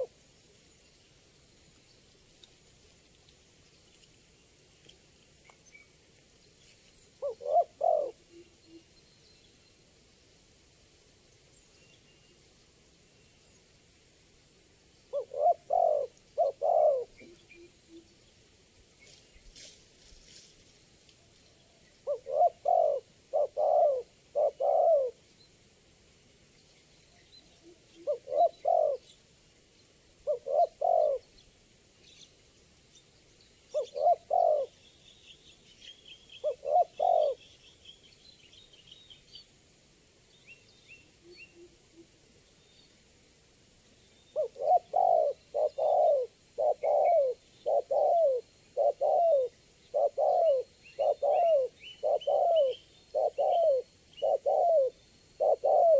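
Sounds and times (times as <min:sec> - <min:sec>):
dove cooing: 0:07.2 - 0:08.5, 0:15.1 - 0:17.8, 0:22.0 - 0:25.2, 0:27.6 - 0:29.2, 0:30.2 - 0:31.4, 0:33.7 - 0:34.8, 0:36.4 - 0:37.4, 0:44.4 - 0:55.9
small birds chirping: 0:15.0 - 0:25.6, 0:26.4 - 0:39.6, 0:43.8 - 0:55.9.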